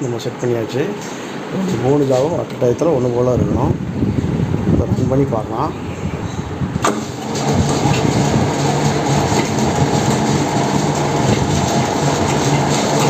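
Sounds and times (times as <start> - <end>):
lathe running with low hum: 6.9 - 13.0.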